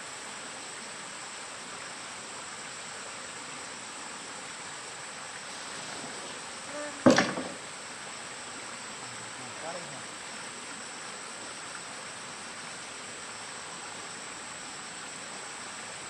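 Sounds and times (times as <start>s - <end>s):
sharp knock: 7.0s - 7.7s.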